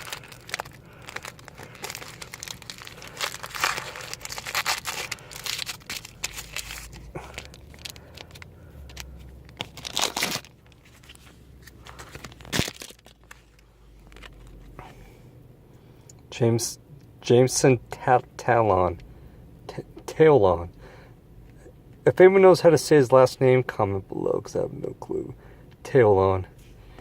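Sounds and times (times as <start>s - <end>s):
sharp packaging crackles: 0.0s - 14.6s
card packaging crinkling and rustling: 0.0s - 14.8s.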